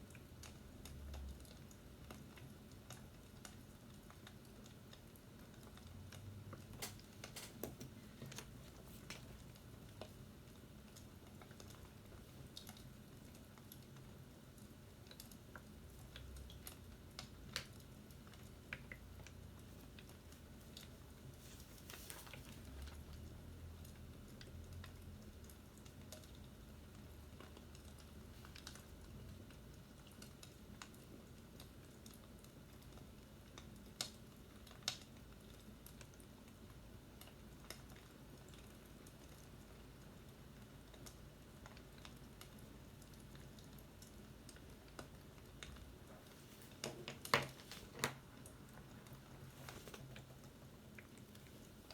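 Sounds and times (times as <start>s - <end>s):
low steady hum: 0.0s - 51.9s
light clicks and taps: 40.9s - 51.9s.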